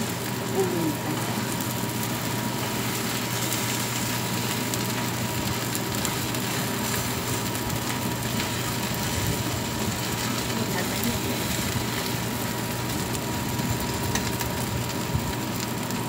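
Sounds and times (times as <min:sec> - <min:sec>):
oil sizzling and crackling: 0:00.0 - 0:16.0.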